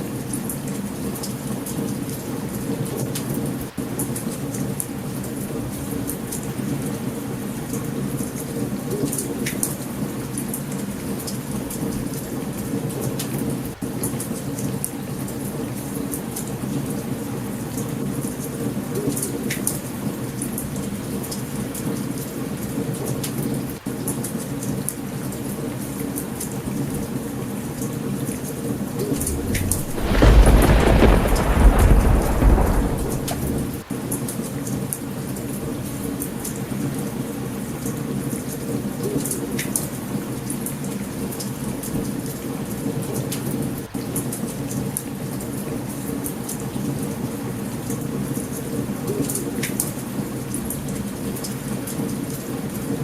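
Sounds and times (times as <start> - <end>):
steady rain: 0.0 - 53.0
heavy rain: 28.9 - 34.3
low rumble of thunder: 29.0 - 33.9
campfire crackling pops: 29.2 - 33.8.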